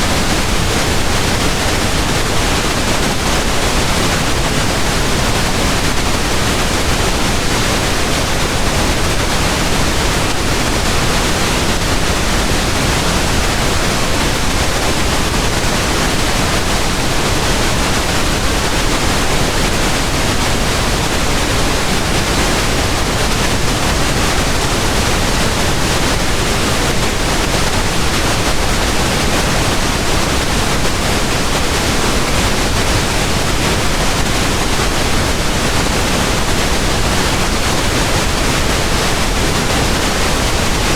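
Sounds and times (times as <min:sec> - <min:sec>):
steady pink noise hiss: 0:00.0 - 0:40.9.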